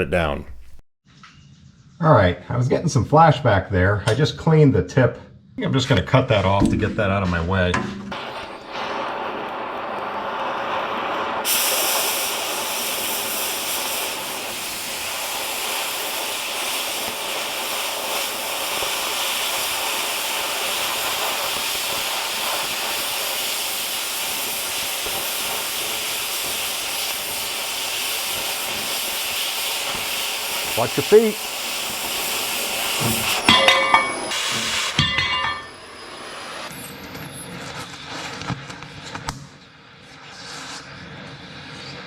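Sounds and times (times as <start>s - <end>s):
cutting torch hissing: 8.1s - 37.5s.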